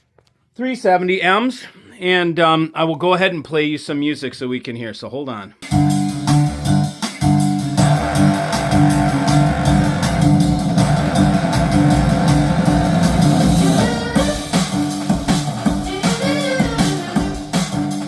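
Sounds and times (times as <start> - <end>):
guitar music over loudspeakers: 7.8 - 13.8.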